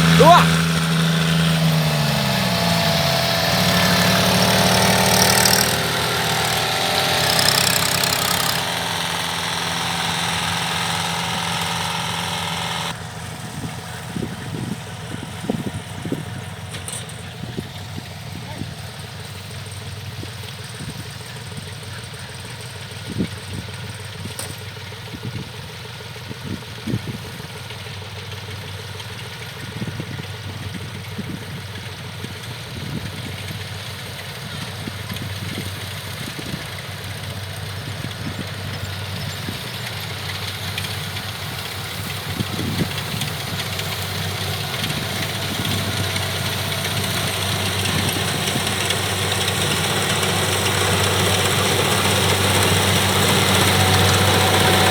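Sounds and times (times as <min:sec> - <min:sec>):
combine harvester diesel engines: 0:00.0 - 0:54.9.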